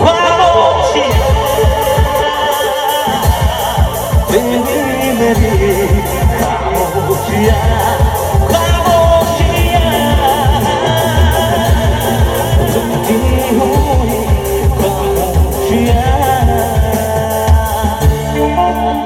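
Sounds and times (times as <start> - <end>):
live band playing: 0.0 - 19.0
steady drum beat: 0.0 - 19.0.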